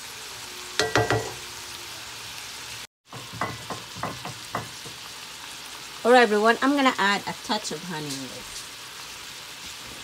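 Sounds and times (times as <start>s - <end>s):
vegetables sizzling in a skillet: 0.0s - 10.0s
spatula knocking and scraping pan: 0.8s - 1.5s, 3.0s - 5.1s.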